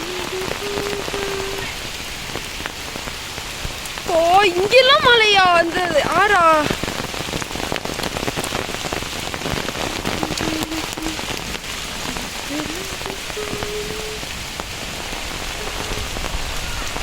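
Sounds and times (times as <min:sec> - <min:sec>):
heavy rain pattering: 0:00.0 - 0:17.0
faint wavering tone: 0:09.9 - 0:11.3, 0:12.1 - 0:14.2.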